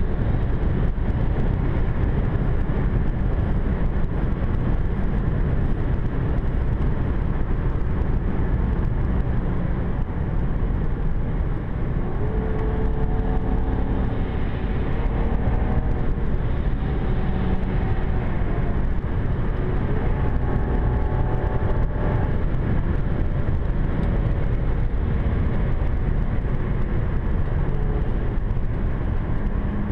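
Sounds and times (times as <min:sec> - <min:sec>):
car road and drivetrain rumble: 0:00.0 - 0:29.9.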